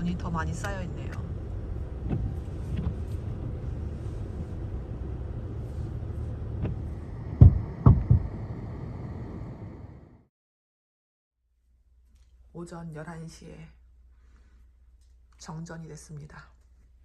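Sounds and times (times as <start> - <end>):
car rumbling on snowy road: 0.0 - 10.3
heavy thumps: 6.6 - 8.3.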